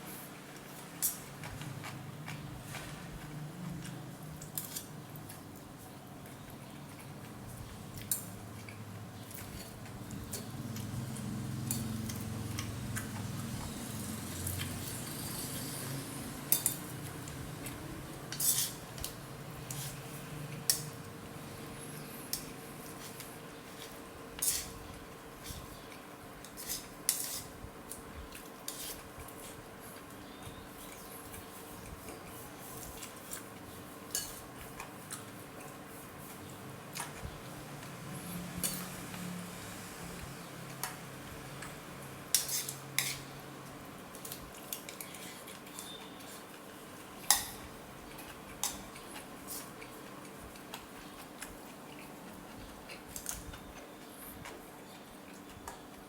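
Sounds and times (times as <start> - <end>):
utensils clinking against bowl: 16.4 - 17.0, 18.3 - 20.0, 26.4 - 27.5, 34.1 - 34.4.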